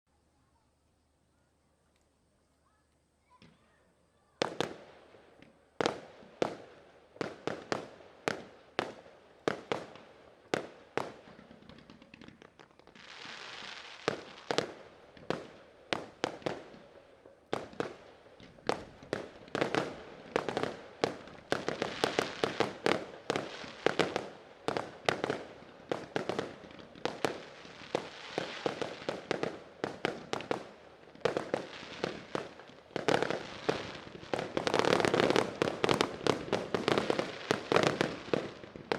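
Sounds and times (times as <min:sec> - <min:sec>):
fireworks bursting with bangs: 0:03.2 - 0:38.9.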